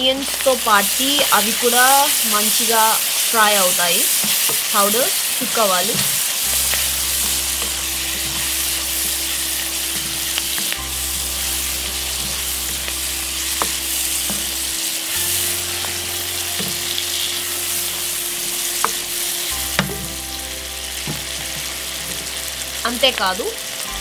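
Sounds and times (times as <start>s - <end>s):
onions sizzling in hot oil: 0.0s - 24.0s.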